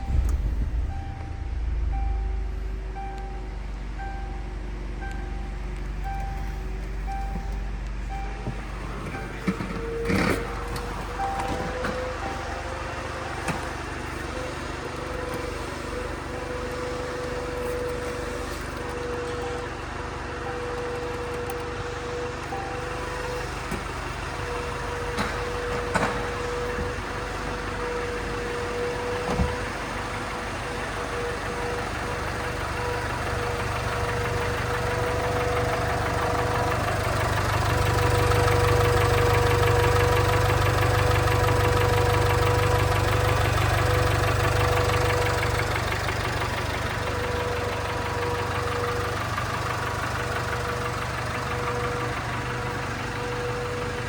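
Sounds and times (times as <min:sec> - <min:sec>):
steady whine: 0:00.0 - 0:14.2
car engine running: 0:00.0 - 0:54.0.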